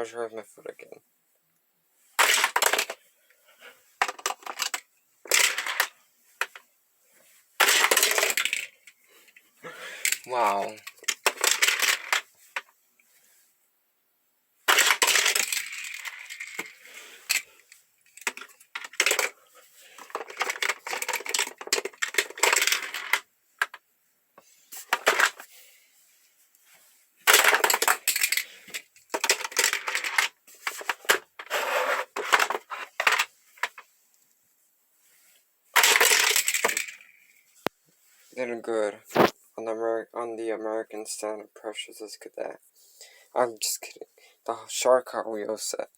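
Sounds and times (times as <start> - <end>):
toy cars clattering on plastic track: 2.2 - 3.0, 4.0 - 6.6, 7.6 - 9.0, 10.0 - 12.7, 14.7 - 23.8, 24.8 - 25.5, 27.2 - 33.9, 35.8 - 37.4.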